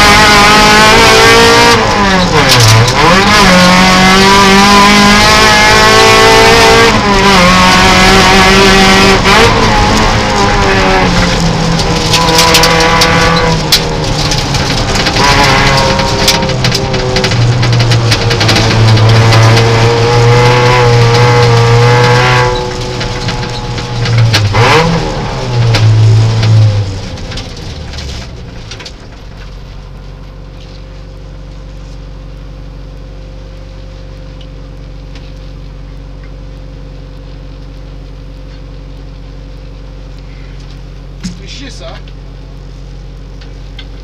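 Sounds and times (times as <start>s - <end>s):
rally car engine revving: 0.0s - 32.6s.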